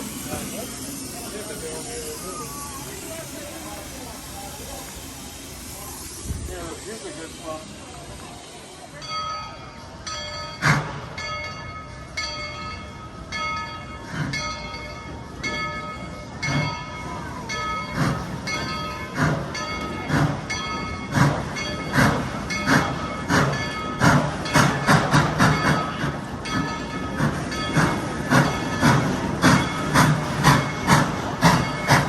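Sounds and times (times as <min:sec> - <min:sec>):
steam locomotive exhaust chuffs: 0:00.0 - 0:32.0
locomotive bell ringing: 0:08.7 - 0:32.0.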